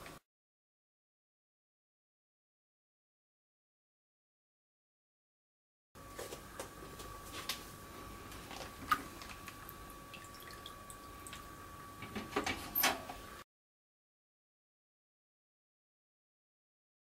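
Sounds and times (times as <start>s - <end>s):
water dripping and splashing: 8.5s - 11.5s.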